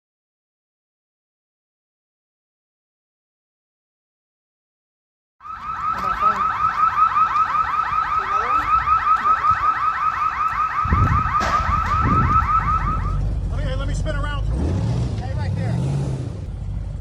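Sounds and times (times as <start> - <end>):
car alarm chirping: 5.4 - 13.2
low rumble: 10.8 - 17.0.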